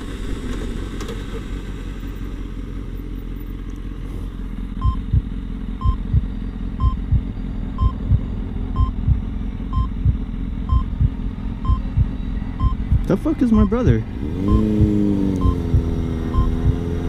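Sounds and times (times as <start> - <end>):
low rumble: 4.0 - 16.9
heart monitor beeps: 4.8 - 16.8
heartbeat double thump: 4.8 - 17.0.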